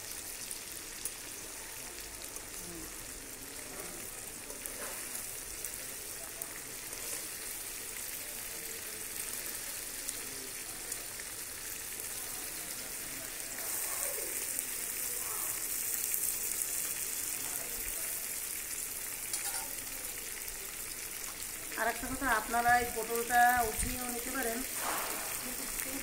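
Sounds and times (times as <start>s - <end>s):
food sizzling in hot oil: 0.0s - 26.0s
metal spatula clinking: 19.3s - 19.8s.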